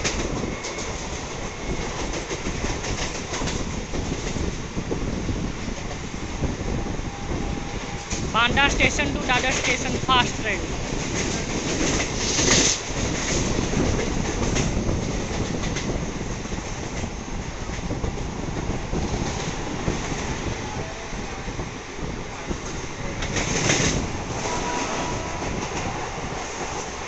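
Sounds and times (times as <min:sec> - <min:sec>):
train wheels clattering over rails: 0:00.0 - 0:27.0.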